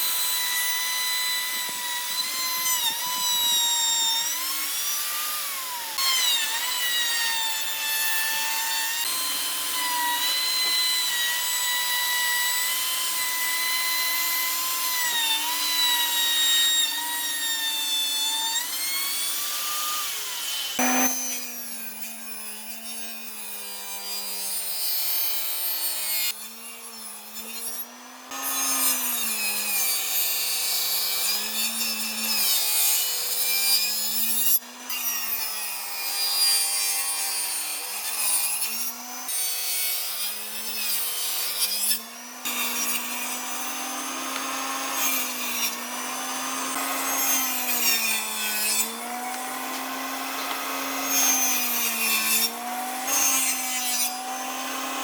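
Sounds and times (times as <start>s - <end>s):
power tool motor whining: 0.0s - 23.1s, 41.2s - 55.0s.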